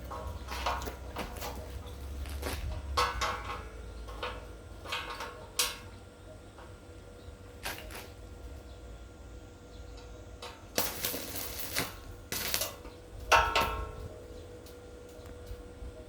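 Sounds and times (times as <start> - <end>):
ringing metal clang: 0.0 - 6.0, 10.5 - 14.1.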